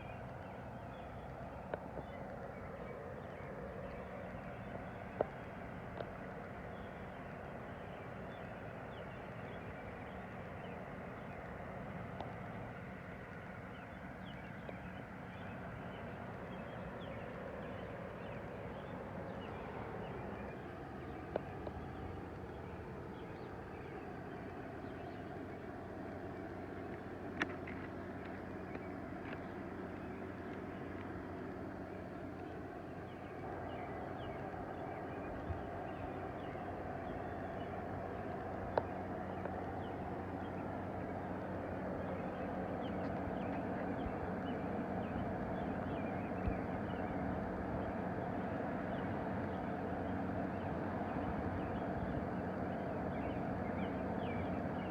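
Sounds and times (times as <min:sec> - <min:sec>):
low hum: 0:00.0 - 0:54.9
faint high ticks: 0:05.2 - 0:06.4, 0:11.3 - 0:12.6, 0:38.7 - 0:39.8.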